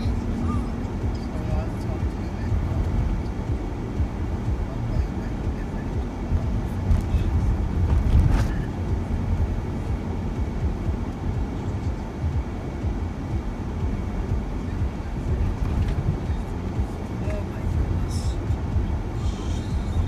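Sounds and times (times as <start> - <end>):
van road and engine rumble: 0.0 - 20.0.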